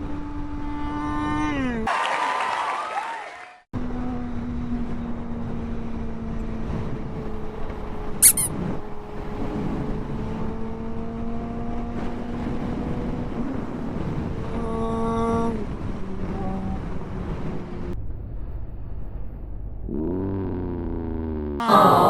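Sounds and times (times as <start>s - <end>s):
motorcycle engine at speed: 0.0s - 1.9s, 3.8s - 21.7s
wind rushing over microphone: 4.7s - 19.5s
loud high squeak: 8.2s - 8.6s.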